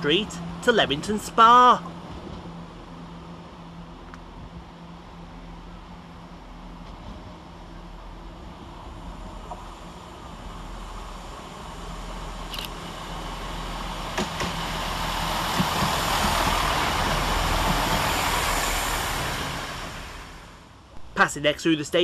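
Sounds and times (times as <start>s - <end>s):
diesel train passing: 0.0s - 22.0s.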